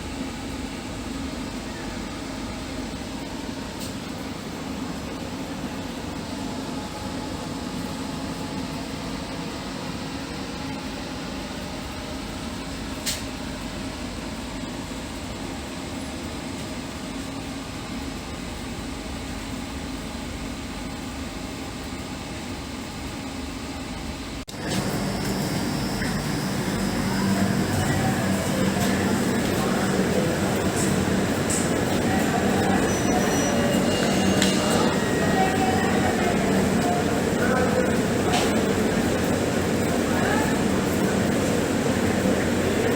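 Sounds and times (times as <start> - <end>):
train coach hum and rumble: 24.5 - 42.9.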